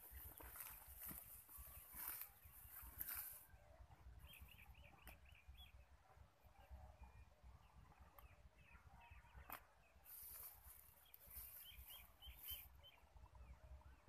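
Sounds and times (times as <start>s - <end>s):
small bird chirping: 4.2s - 5.9s, 6.6s - 13.6s.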